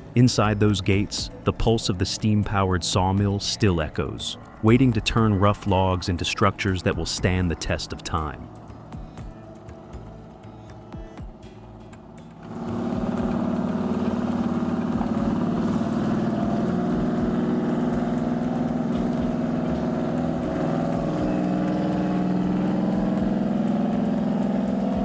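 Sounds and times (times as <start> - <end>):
truck diesel engine running: 6.3 - 25.0.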